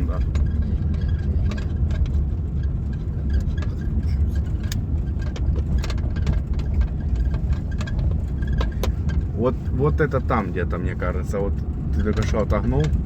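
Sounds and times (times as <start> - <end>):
dashboard clicks and rattles: 0.0 - 13.0
road and engine rumble: 0.0 - 13.0.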